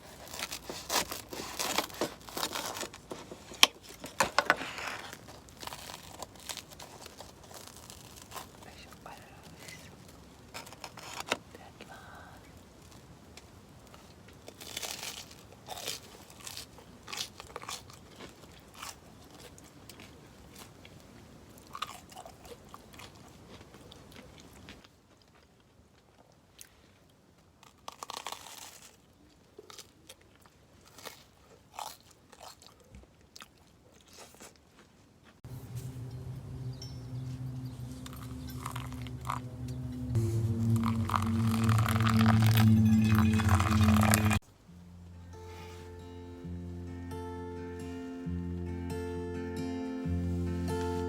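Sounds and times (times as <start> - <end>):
person chewing crunchy food: 0.0 - 11.4, 14.0 - 20.9, 21.6 - 26.8, 27.6 - 34.9, 37.9 - 44.4.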